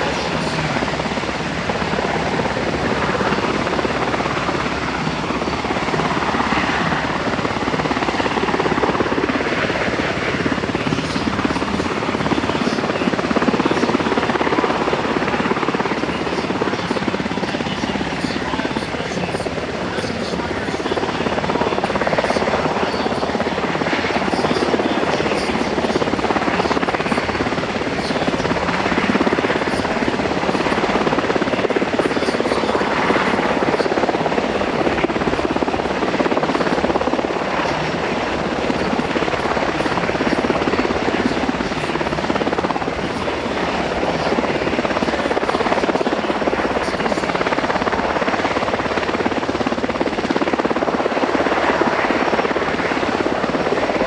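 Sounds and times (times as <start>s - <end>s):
helicopter hovering: 0.0s - 54.0s.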